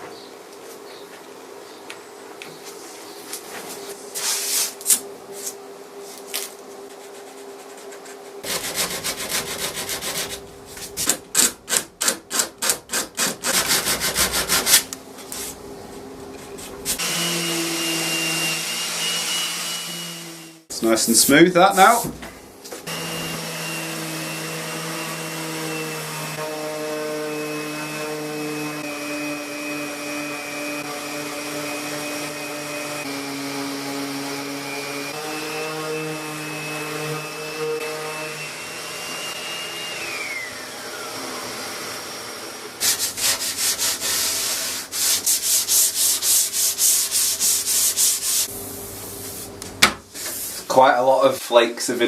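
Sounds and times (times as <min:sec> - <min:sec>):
hand sanding strokes: 0:06.9 - 0:11.1, 0:12.3 - 0:15.6, 0:22.8 - 0:38.4, 0:42.8 - 0:49.6, 0:50.2 - 0:51.7
electric sander on wood: 0:17.0 - 0:20.7, 0:22.8 - 0:48.5.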